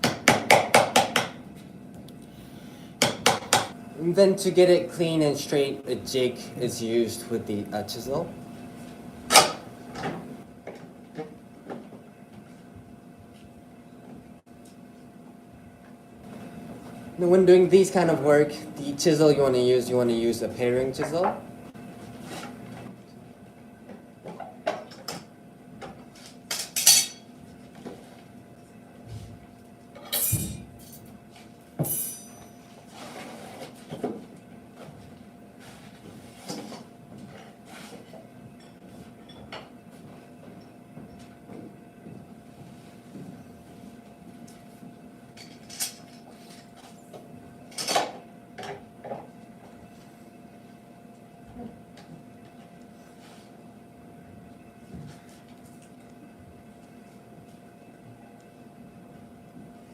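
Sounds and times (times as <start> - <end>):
faint steady hum: 0.0 - 33.2
metallic clinks and knocks of tools: 31.8 - 32.7.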